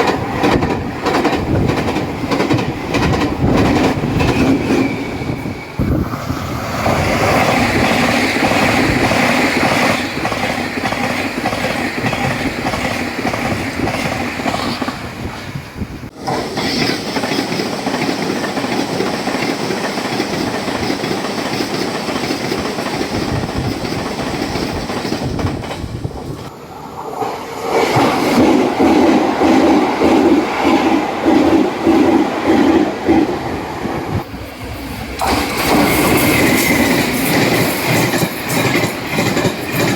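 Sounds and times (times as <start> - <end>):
train wheels clattering: 0.0 - 15.2, 16.1 - 26.5, 34.6 - 39.9.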